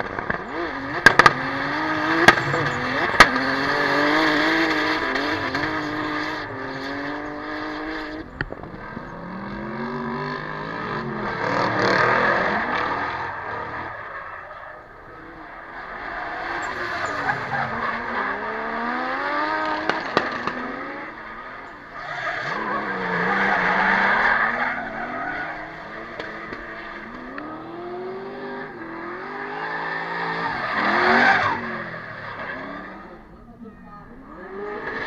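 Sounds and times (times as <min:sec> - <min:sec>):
car engine revving: 0:00.0 - 0:35.0
tyres squealing: 0:00.5 - 0:06.6.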